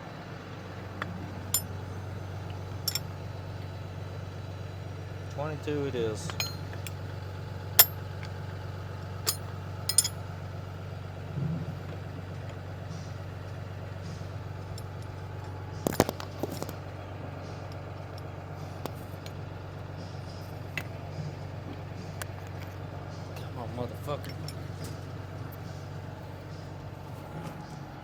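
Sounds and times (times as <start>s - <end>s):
engine idling: 0.0s - 28.0s
metallic clinks of hand tools: 1.5s - 1.8s, 2.8s - 3.1s, 6.3s - 7.0s, 7.8s - 8.1s, 9.2s - 10.2s.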